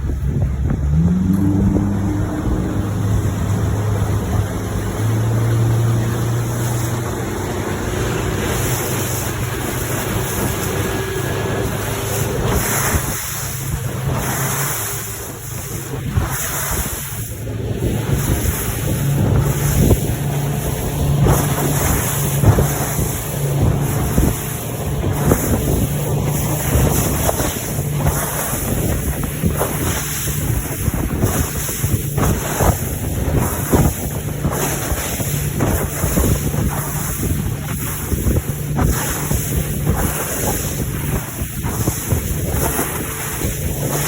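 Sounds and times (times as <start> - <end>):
outboard motor running: 0.0 - 44.0
wind buffeting microphone: 0.0 - 44.0
boat hull knocking on waves: 17.8 - 44.0.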